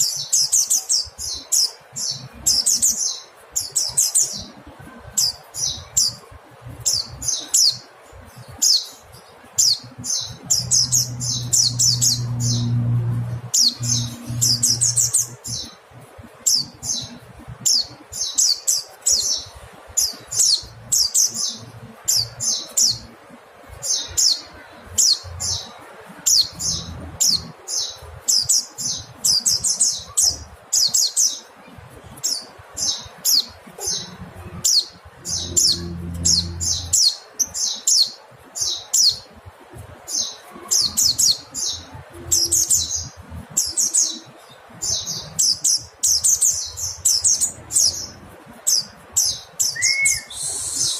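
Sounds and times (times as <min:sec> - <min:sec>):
bird chirping rapidly: 0:05.2 - 0:23.2, 0:40.2 - 0:50.9.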